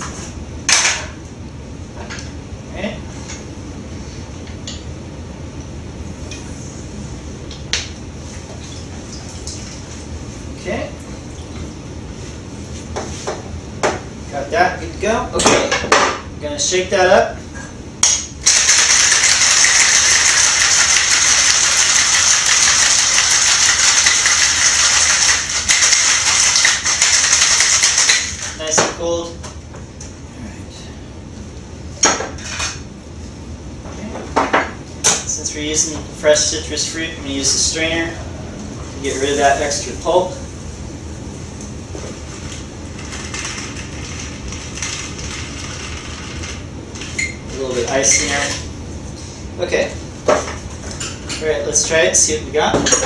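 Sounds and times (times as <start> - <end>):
low room hum: 0.0 - 53.0
ice rattling in cocktail shaker: 18.5 - 28.6.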